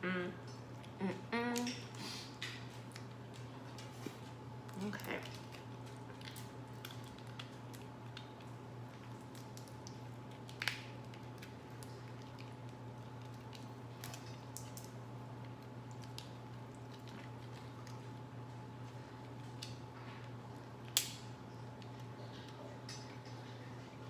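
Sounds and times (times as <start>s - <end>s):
steady low hum: 0.0s - 24.0s
food being chewed: 1.6s - 24.0s
seafood shells cracking: 4.6s - 18.3s, 19.2s - 22.6s.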